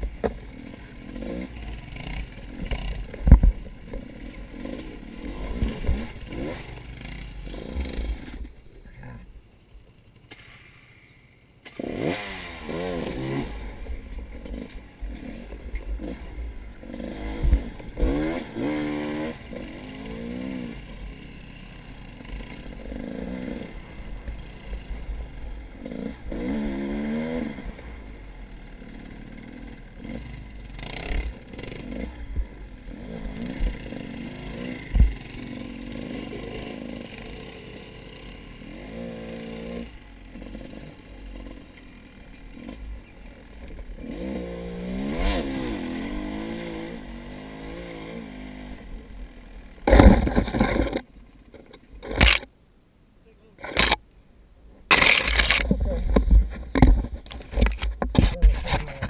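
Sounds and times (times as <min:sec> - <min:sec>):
vehicle engine revving: 0:00.0 - 0:08.6, 0:11.6 - 0:51.1
rattling: 0:49.9 - 0:52.5, 0:54.9 - 0:59.0.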